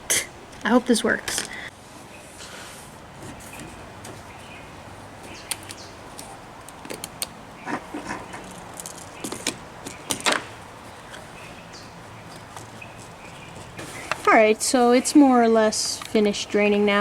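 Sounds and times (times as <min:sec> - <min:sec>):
small hard objects clicking: 0:08.4 - 0:10.4.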